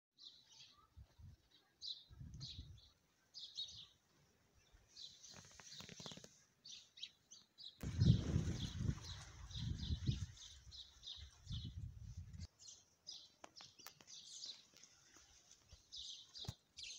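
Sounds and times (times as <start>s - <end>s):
small birds chirping: 0.2s - 16.9s
microphone rumble: 7.8s - 10.3s.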